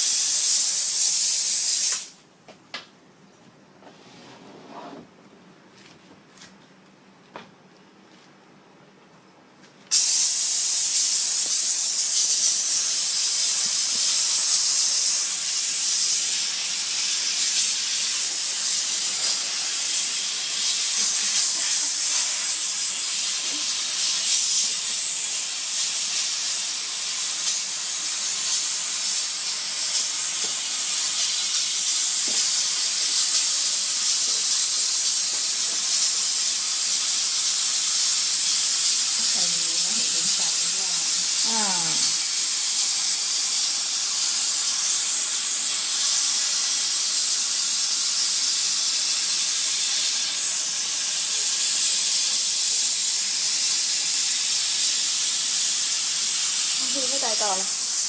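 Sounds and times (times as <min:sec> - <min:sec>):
fogger machine spraying hiss: 0:00.0 - 0:02.2, 0:09.9 - 0:58.0.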